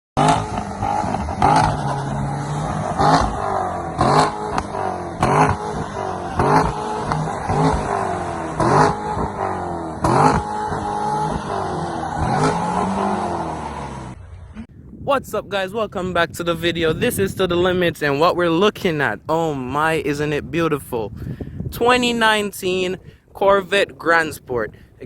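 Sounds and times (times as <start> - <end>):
car engine revving: 0.2 - 14.7.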